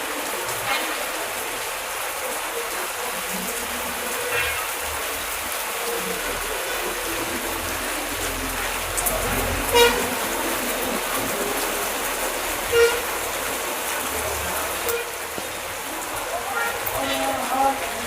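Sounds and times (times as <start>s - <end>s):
heavy rain: 0.0s - 18.0s
vehicle horn toots: 9.7s - 10.2s, 12.7s - 13.2s, 14.8s - 15.2s.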